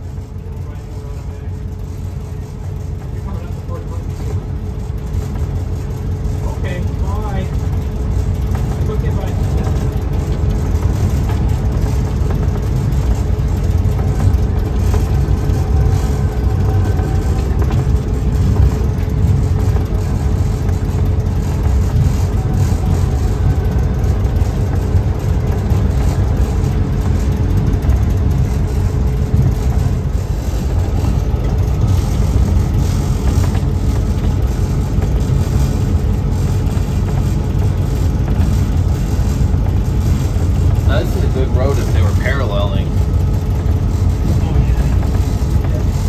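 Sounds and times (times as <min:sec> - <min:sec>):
faint steady drone: 0:00.0 - 0:46.0
train engine rumble: 0:00.0 - 0:46.0.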